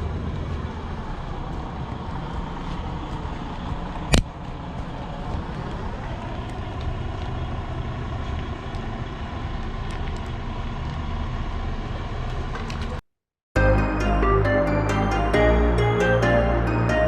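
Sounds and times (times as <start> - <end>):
diesel truck engine rumbling: 0.0 - 13.0, 13.6 - 17.0
music: 13.6 - 17.0.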